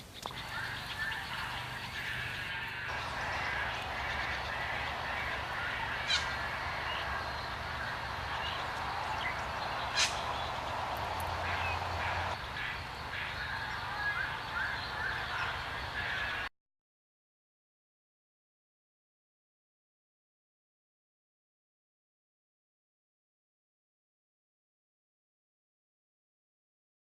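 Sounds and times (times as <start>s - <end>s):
birds squawking and honking: 0.0s - 16.5s
outdoor hiss: 0.0s - 16.5s.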